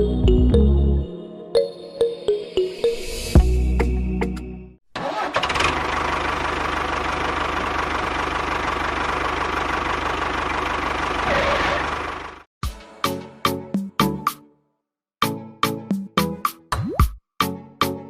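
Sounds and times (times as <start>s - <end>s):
small engine rattling: 5.0s - 12.4s.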